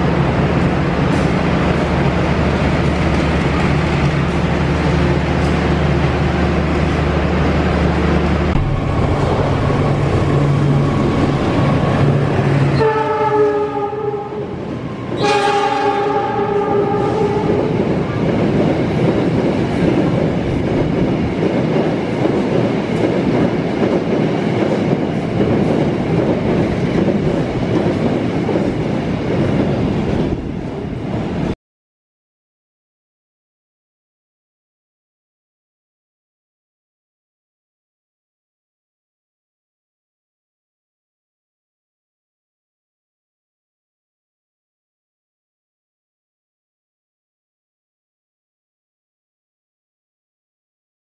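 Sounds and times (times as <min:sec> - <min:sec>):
freight train rumble: 0:00.0 - 0:31.6
locomotive horn blasts: 0:12.7 - 0:17.8.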